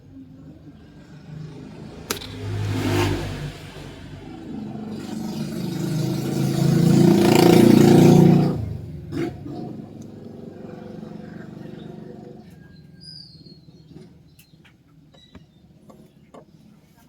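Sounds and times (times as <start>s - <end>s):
engine running and revving: 0.8s - 12.6s
sharp click: 2.1s - 2.8s.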